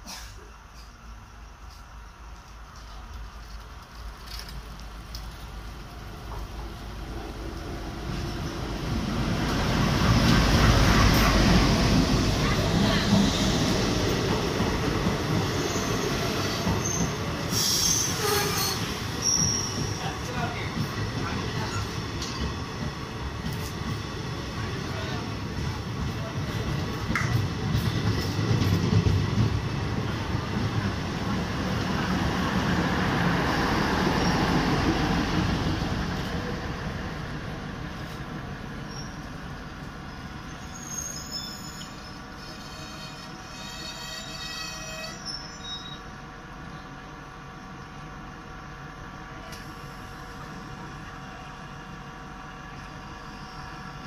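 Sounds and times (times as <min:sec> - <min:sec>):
train wheels rumbling on rail: 0:00.0 - 0:54.0
high wheel squeal: 0:15.5 - 0:20.0, 0:40.5 - 0:46.1.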